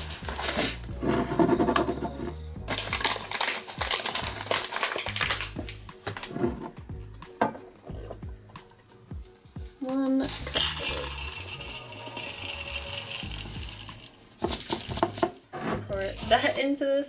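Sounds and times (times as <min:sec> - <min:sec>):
background music with bass line: 0:00.0 - 0:16.6
dry ingredients rustling: 0:02.7 - 0:06.4, 0:10.2 - 0:16.7.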